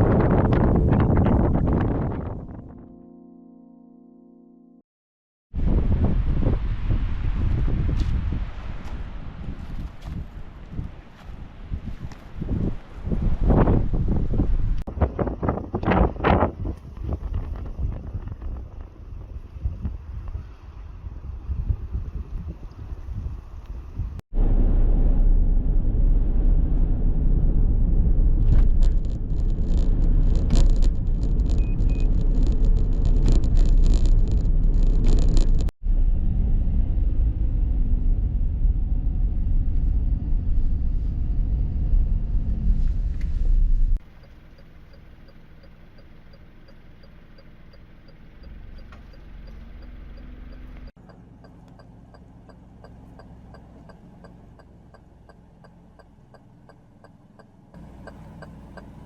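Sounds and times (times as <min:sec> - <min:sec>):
wind buffeting microphone: 0:00.0 - 0:02.8, 0:05.6 - 0:44.0
crackling knocks: 0:28.5 - 0:35.7.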